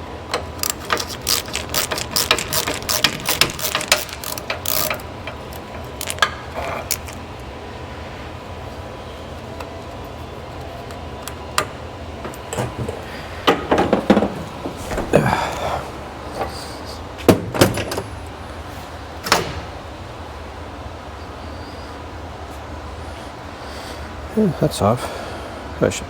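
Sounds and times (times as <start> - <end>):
metal clanks and rattles: 0.3 - 7.2, 10.9 - 15.4.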